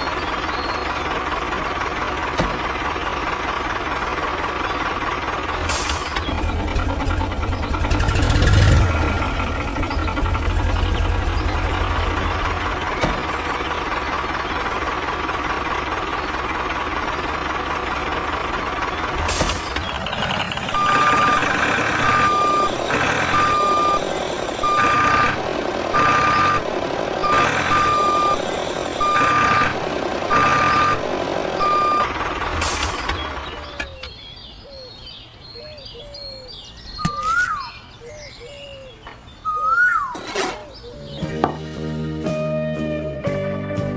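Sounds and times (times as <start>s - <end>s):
reversing alarm beeping: 20.7s - 32.1s.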